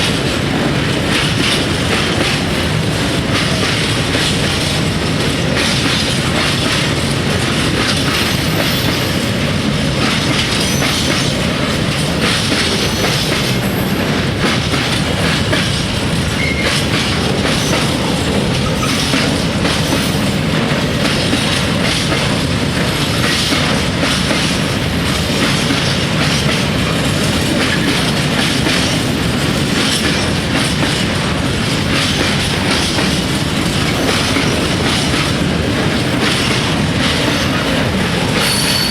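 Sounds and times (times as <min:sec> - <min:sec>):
train wheels clattering over joints: 0:00.0 - 0:38.9
wheel squeal: 0:16.4 - 0:16.8, 0:38.4 - 0:38.9.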